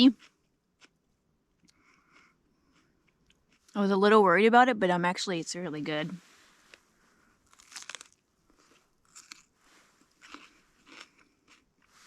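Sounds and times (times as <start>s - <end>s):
person chewing crunchy pepper: 0.1s - 3.8s, 7.5s - 12.0s.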